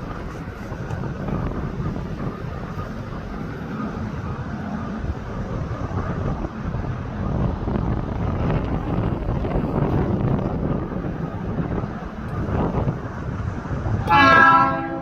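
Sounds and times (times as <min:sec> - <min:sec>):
train arriving with low rumble: 0:00.0 - 0:15.0
wind buffeting microphone: 0:00.0 - 0:15.0.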